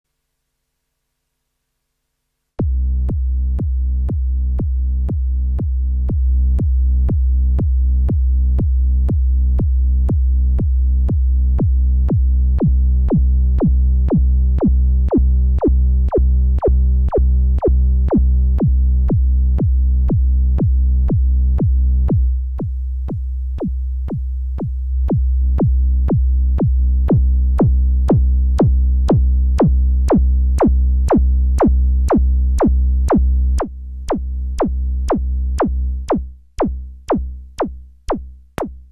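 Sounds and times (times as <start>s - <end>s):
deep synth bass: 2.6s - 38.9s
clicking beat: 10.1s - 38.9s.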